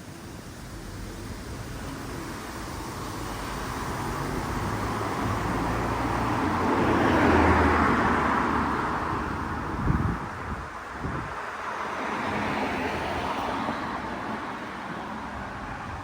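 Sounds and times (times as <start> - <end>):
car driving past: 3.1 - 10.0, 11.5 - 15.2.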